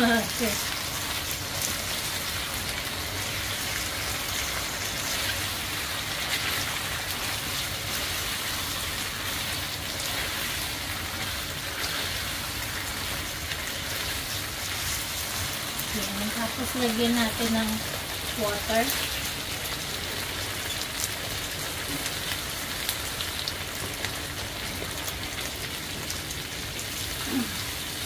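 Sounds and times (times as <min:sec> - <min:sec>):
spatula stirring in a wok: 0:00.0 - 0:19.8
meat sizzling in a wok: 0:00.0 - 0:28.0.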